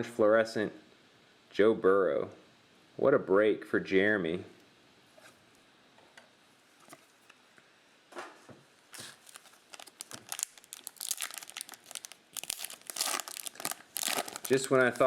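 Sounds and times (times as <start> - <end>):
plastic wrapper tearing and crinkling: 8.9 - 15.0.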